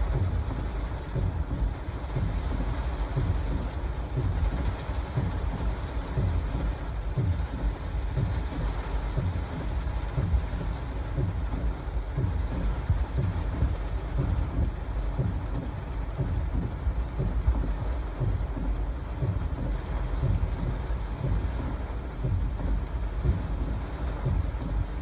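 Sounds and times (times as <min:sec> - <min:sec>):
heavy rain hissing: 0:00.0 - 0:25.0.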